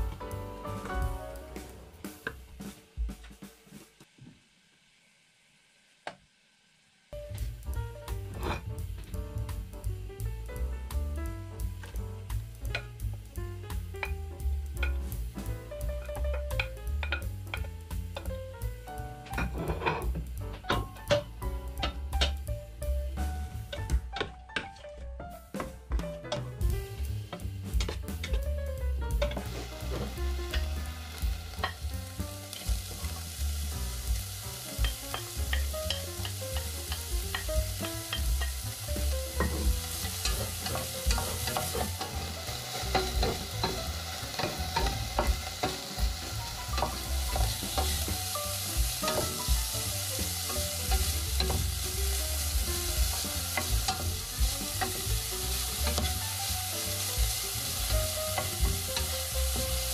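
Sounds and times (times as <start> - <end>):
vegetables sizzling in a pot: 0.0 - 24.6, 25.5 - 59.9
wooden spatula scraping a pot: 19.4 - 20.2.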